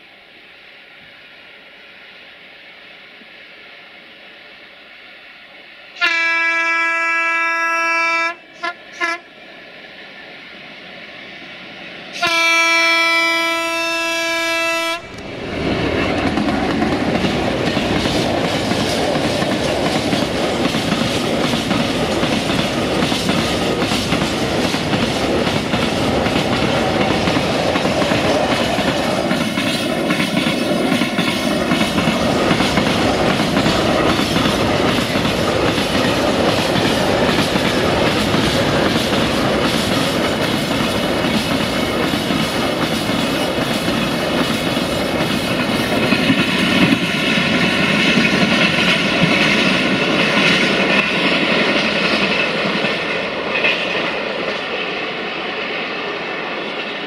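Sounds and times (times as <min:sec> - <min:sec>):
train horn blast: 0:06.0 - 0:09.3, 0:12.1 - 0:15.2
diesel locomotive engine running: 0:13.1 - 0:54.6.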